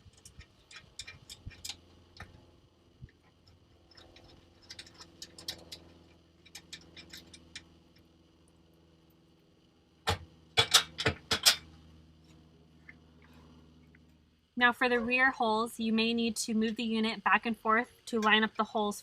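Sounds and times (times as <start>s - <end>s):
faint low hum: 0.0s - 19.0s
metallic clicks of screws loosened: 0.1s - 1.8s, 3.9s - 7.7s.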